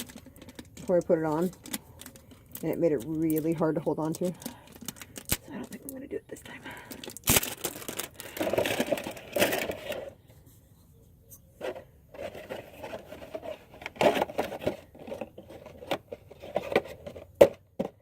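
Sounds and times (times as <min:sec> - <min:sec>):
oil filter scraping and rubbing: 0:11.3 - 0:17.4.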